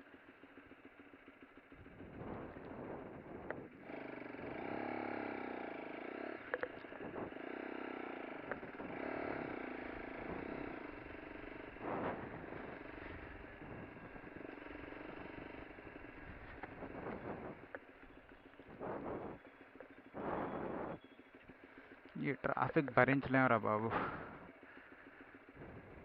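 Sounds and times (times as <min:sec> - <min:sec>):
motorcycle engine accelerating: 0:00.0 - 0:26.0
sharp clicks: 0:16.2 - 0:23.1.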